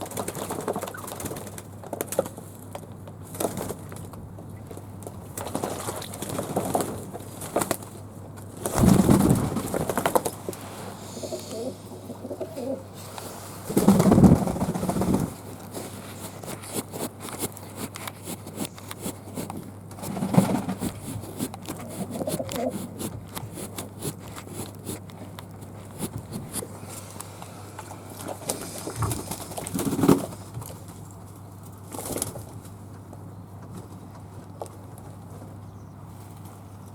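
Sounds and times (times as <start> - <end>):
doves cooing: 8.6 - 13.0, 20.0 - 24.7.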